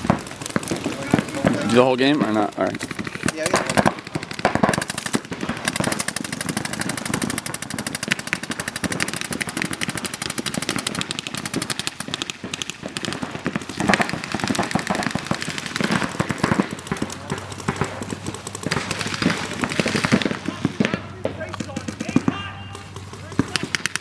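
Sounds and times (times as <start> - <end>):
paintball markers firing rapidly: 0.0 - 24.0.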